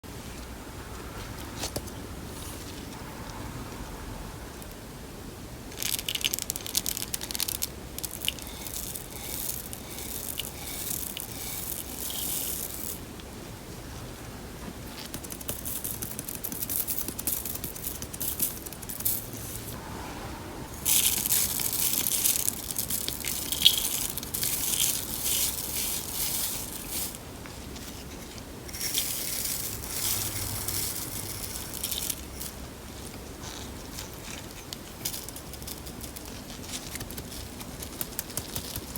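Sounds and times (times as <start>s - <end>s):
crunchy slime crackling and popping: 5.8s - 13.0s, 20.9s - 27.2s, 28.7s - 38.9s.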